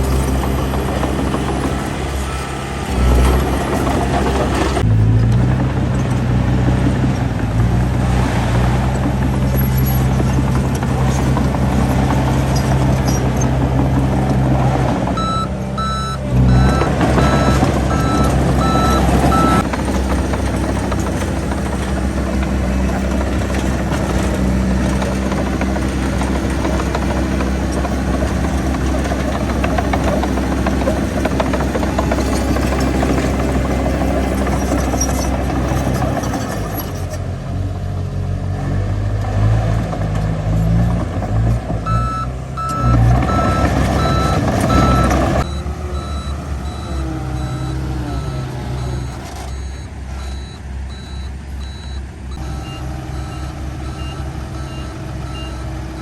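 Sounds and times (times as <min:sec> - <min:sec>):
heavy diesel engine running: 0:00.0 - 0:56.0
reversing alarm beeping: 0:15.2 - 0:19.6, 0:41.8 - 0:56.0.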